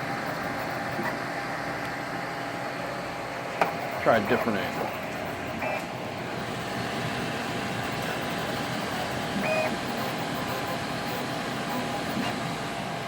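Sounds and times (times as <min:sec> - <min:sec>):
printer fans and motors whirring: 0:00.0 - 0:13.0.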